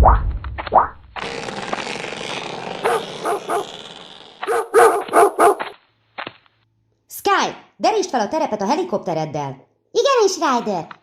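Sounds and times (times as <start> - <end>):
dogs barking: 2.8 - 3.7, 4.4 - 5.7.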